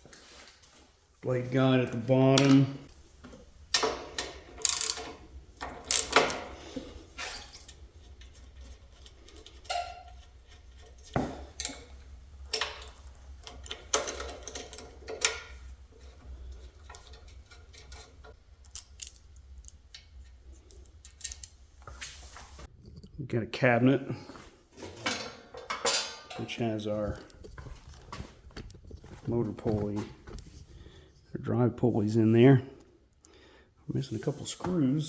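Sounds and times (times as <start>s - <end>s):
metal parts clicking and scraping: 3.6s - 23.2s.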